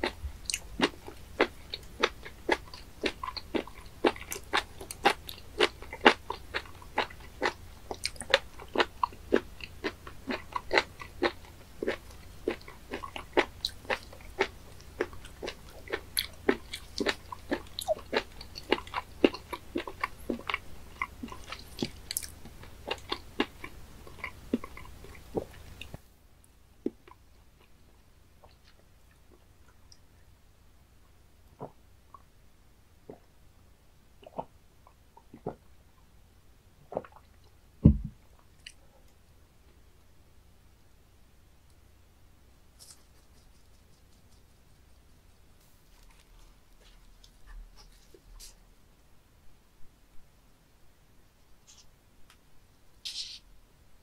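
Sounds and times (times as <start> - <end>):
chewing mouth clicks: 0.0 - 26.0.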